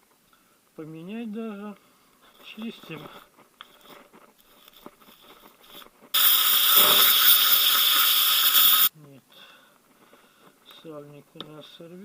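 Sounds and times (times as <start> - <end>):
handling clicks and scrapes: 2.3 - 7.5
spray jet hissing: 6.2 - 8.9.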